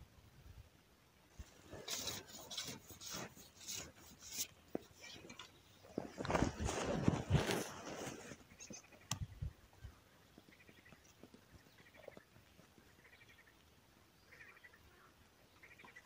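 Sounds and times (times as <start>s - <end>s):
faint trilled bird call: 14.2s - 16.0s.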